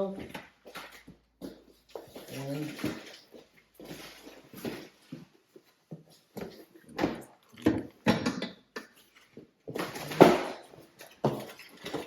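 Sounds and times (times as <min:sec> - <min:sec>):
packaging rustling: 0:00.5 - 0:05.2, 0:09.0 - 0:12.0.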